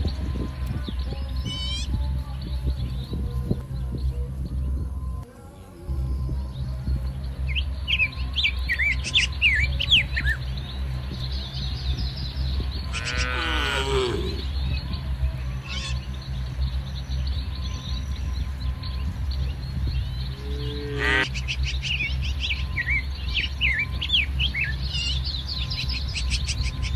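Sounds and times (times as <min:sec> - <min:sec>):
small birds chirping: 0:00.0 - 0:26.9
steady low rumble: 0:00.0 - 0:26.9
cow mooing: 0:12.9 - 0:14.5, 0:20.4 - 0:21.3.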